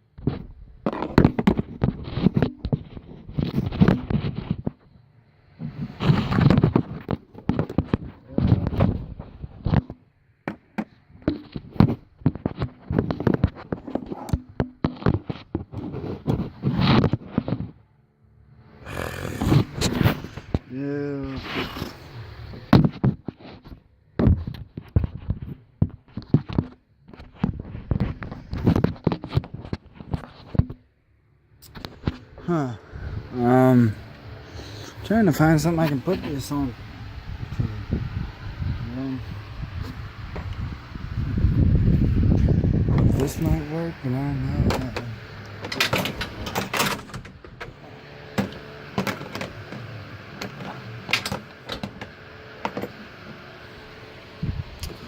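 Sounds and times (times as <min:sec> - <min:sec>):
tools and parts knocking and clattering: 0:00.2 - 0:04.8, 0:09.6 - 0:16.4, 0:44.6 - 0:47.8, 0:48.4 - 0:49.8, 0:50.4 - 0:53.0.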